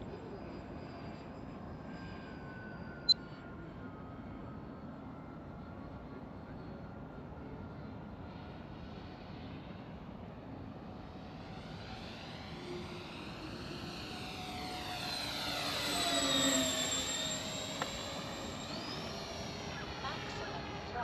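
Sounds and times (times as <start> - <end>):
model plane motors whining: 11.1 - 21.0.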